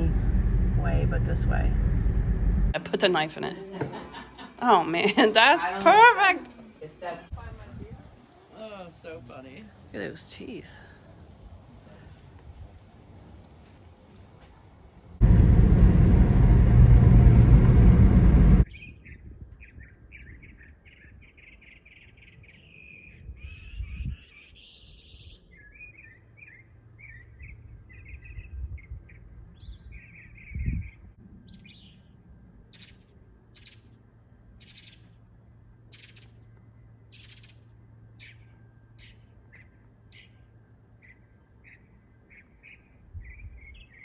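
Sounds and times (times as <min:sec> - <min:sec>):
loud steady rush of noise: 0:00.0 - 0:02.8, 0:15.2 - 0:18.6
small songbirds chirping: 0:18.6 - 0:34.0, 0:34.6 - 0:44.0.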